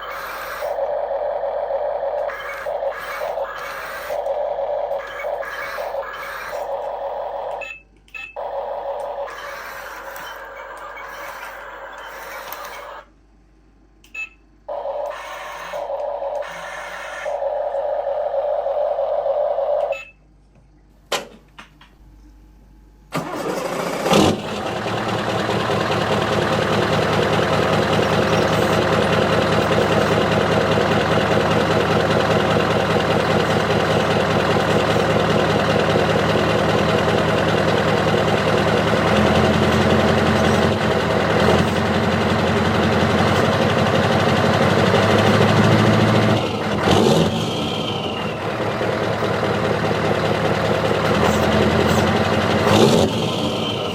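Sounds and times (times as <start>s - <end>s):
model machine engine running: 0.0s - 7.6s, 8.3s - 13.1s, 14.7s - 20.0s, 23.2s - 53.9s
steady whine: 0.0s - 20.9s, 22.0s - 53.9s
clicks: 9.0s - 13.1s.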